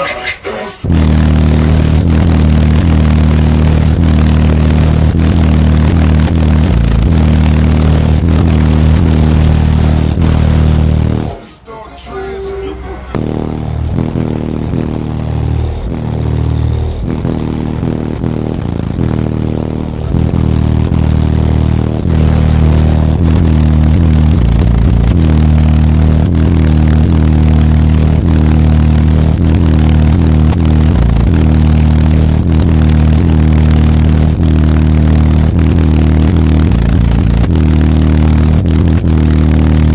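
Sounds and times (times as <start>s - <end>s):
deep bass from car subwoofers: 0.0s - 39.9s.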